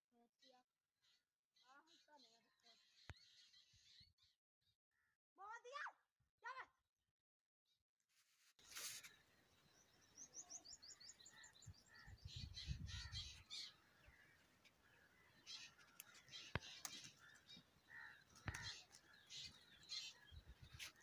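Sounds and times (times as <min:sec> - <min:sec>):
faint birds chirping: 0:00.4 - 0:04.8, 0:08.6 - 0:21.0.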